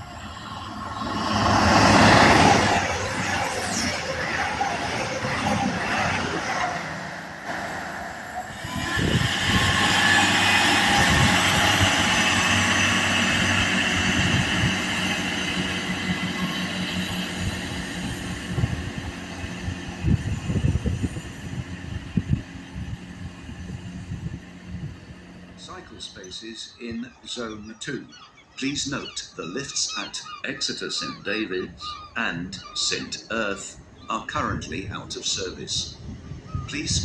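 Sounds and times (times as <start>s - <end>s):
train wheels on rails: 0.0s - 25.7s.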